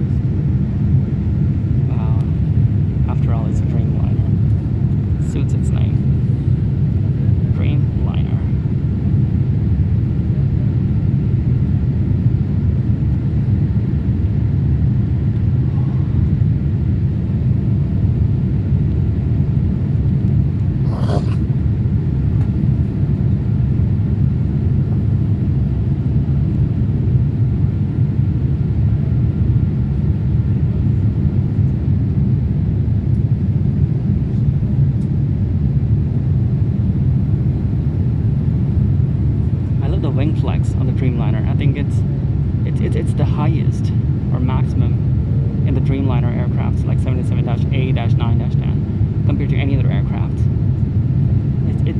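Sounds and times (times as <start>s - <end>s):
airplane cabin engine rumble: 0.0s - 51.9s.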